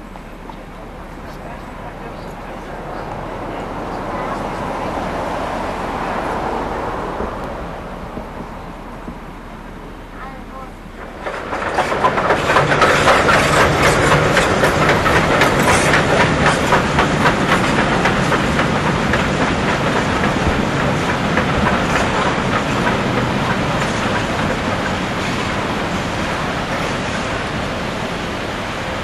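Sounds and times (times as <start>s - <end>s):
train wheels clicking over rail joints: 10.7s - 29.0s.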